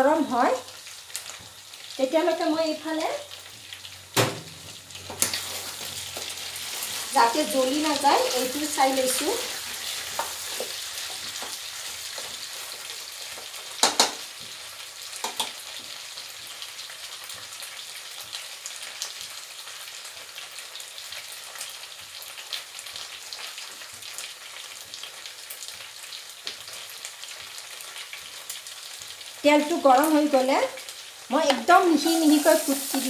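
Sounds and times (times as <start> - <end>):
chicken sizzling in oil: 0.0 - 33.0
sharp knocks: 4.2 - 4.7.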